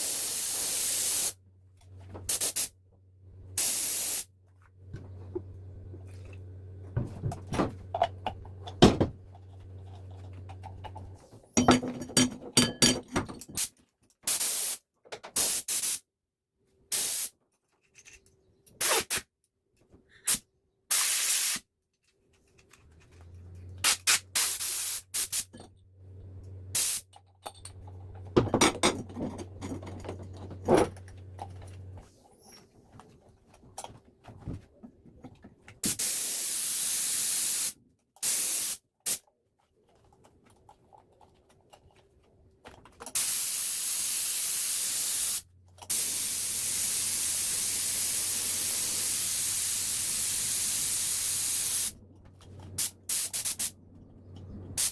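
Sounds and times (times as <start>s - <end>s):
compressed air hissing: 0.0s - 1.4s, 2.3s - 2.7s, 3.6s - 4.3s, 14.3s - 14.8s, 16.9s - 17.3s, 20.2s - 21.6s, 23.8s - 25.5s, 26.8s - 27.0s, 35.8s - 39.2s, 43.2s - 52.0s, 52.8s - 53.8s.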